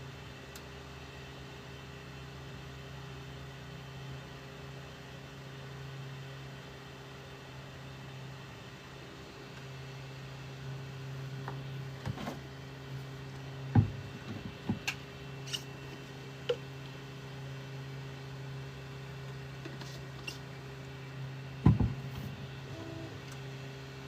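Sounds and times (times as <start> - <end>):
loud knocks: 21.6 - 22.0.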